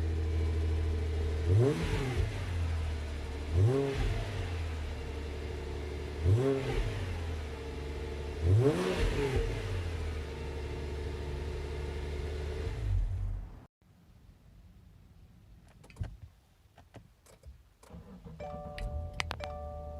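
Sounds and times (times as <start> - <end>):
car engine idling and revving: 0.0 - 13.7.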